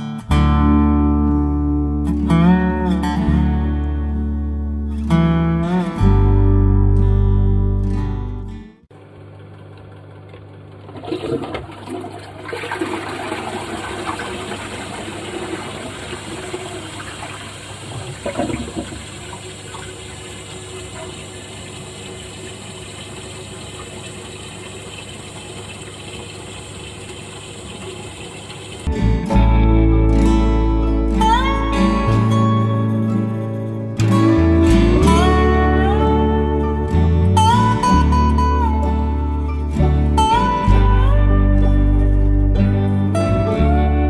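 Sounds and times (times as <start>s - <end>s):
toilet water rushing: 10.7s - 28.9s
flush valve clunk: 10.9s - 28.9s.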